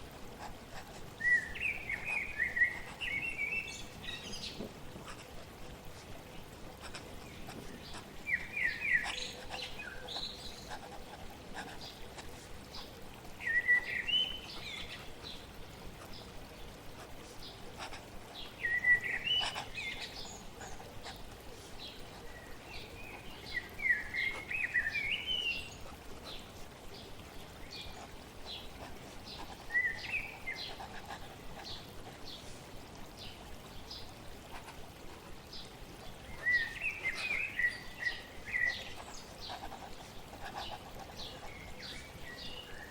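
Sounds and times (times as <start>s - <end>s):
flowing water hiss: 0.0s - 42.9s
songbird warbling: 7.2s - 10.9s, 29.3s - 31.8s
writing on paper: 10.7s - 12.6s, 17.7s - 18.0s, 39.0s - 41.5s.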